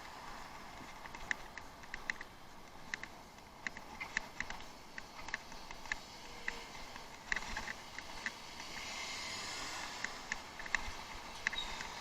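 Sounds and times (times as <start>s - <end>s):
bicycle rattling over rough ground: 0.0s - 12.0s
hiss: 8.4s - 10.3s.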